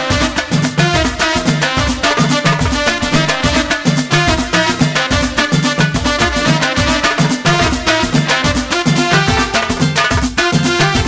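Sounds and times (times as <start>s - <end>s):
driving percussion beat: 0.0s - 11.0s
pitched instruments playing: 0.0s - 11.0s.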